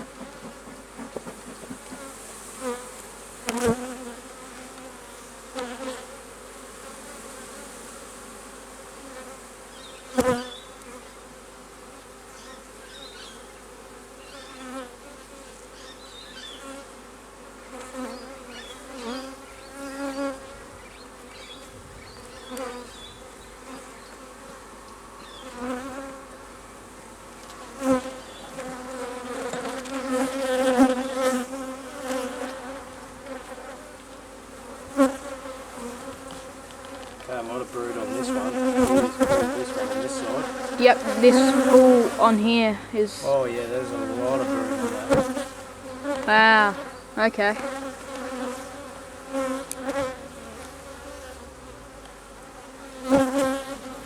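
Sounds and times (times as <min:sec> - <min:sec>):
sharp knocks on hive: 0:00.0 - 0:02.2, 0:44.4 - 0:45.5
honey bees buzzing: 0:00.0 - 0:54.0.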